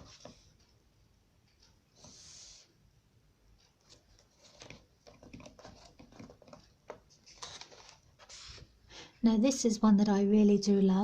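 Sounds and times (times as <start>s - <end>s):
pages rustling and turning: 3.8s - 8.7s.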